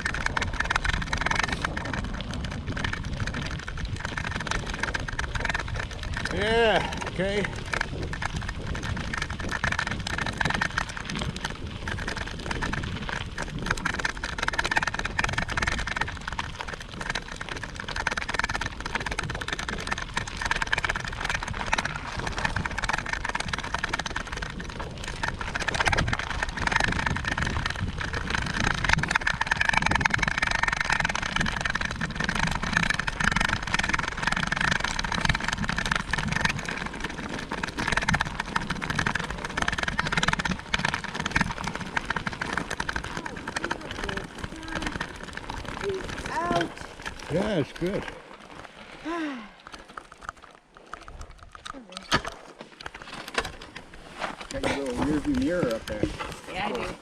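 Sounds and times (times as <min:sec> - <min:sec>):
wind and road noise: 0:00.0 - 0:57.0
low engine rumble: 0:19.4 - 0:49.7.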